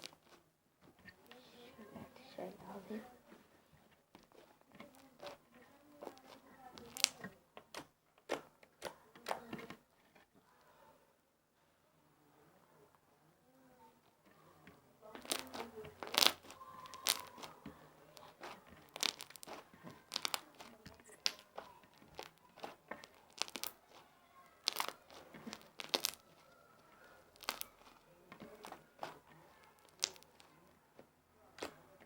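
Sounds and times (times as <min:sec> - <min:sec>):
slime popping and crackling: 0:00.0 - 0:00.4, 0:04.2 - 0:09.4, 0:15.1 - 0:30.8, 0:31.6 - 0:31.8.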